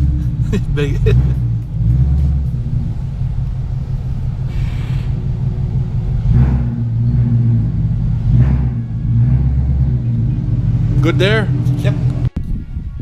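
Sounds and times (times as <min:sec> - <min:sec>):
car engine deep rumble: 0:00.0 - 0:13.0.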